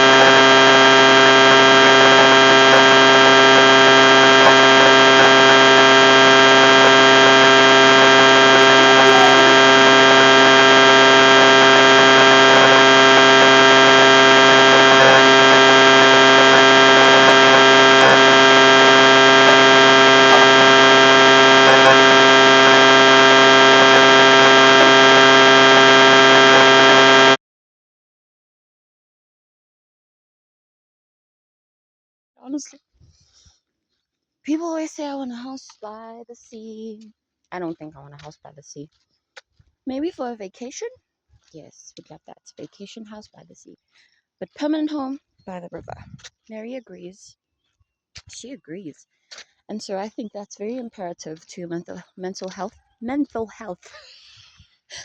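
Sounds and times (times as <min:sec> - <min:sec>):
loud steady multi-tone hum: 0:00.0 - 0:27.4.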